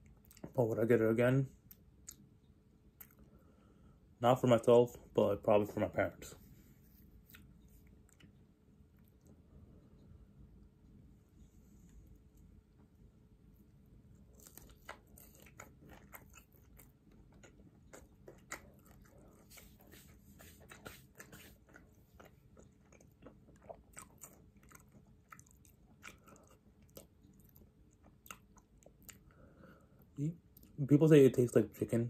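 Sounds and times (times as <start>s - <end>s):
person chewing crunchy food: 14.1s - 29.5s.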